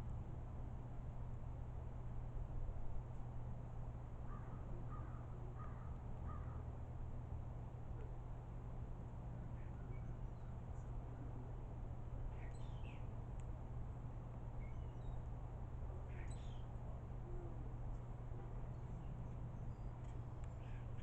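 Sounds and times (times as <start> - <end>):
steady low hum: 0.0 - 21.0
birds chirping: 12.2 - 13.1, 16.0 - 16.8.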